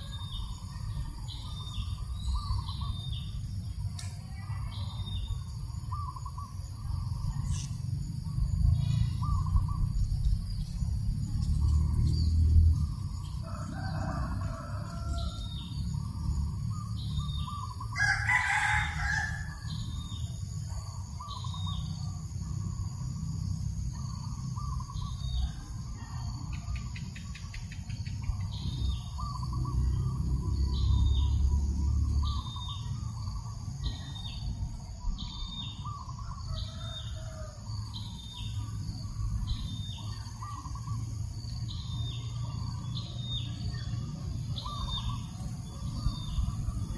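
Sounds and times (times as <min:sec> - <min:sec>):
wind rumbling on microphone: 0:00.0 - 0:16.8, 0:44.2 - 0:46.9
rooster crowing: 0:13.2 - 0:16.0, 0:17.9 - 0:20.0, 0:36.0 - 0:38.1.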